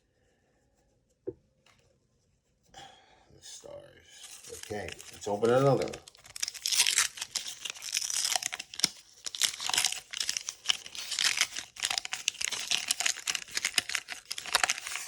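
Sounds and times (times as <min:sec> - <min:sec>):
wax paper wrapper crinkling: 0:04.2 - 0:15.0.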